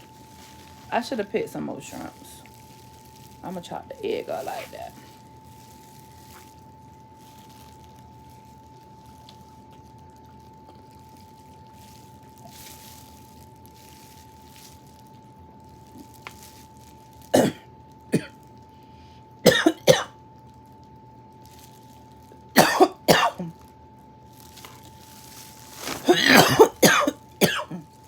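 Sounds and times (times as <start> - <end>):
woman coughing: 17.3 - 18.3, 19.5 - 20.1, 22.6 - 23.5, 25.8 - 27.9.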